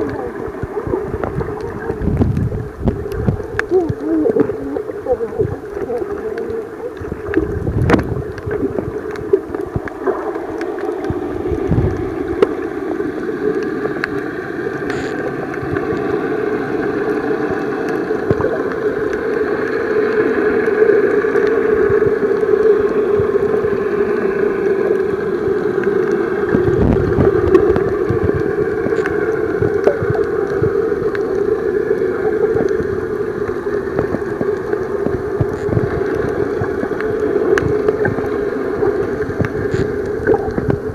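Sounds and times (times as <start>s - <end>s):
muffled underwater drone: 0.0s - 40.9s
underwater gurgling: 0.0s - 40.9s
scattered clicks: 14.8s - 15.4s.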